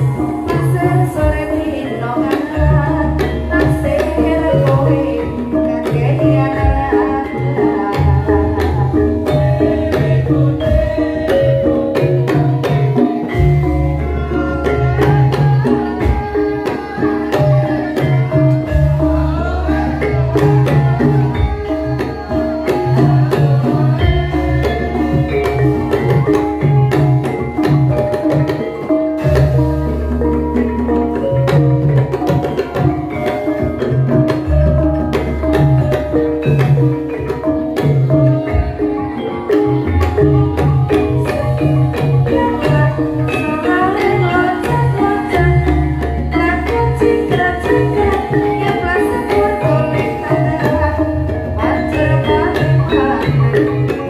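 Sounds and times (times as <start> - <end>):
hand drum patterns: 0.0 - 54.0.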